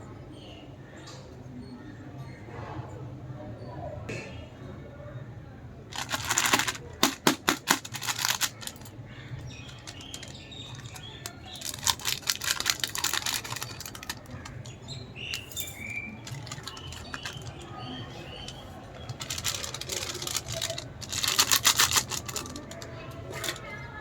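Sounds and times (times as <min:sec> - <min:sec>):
plastic packets crinkling: 0:05.9 - 0:23.9.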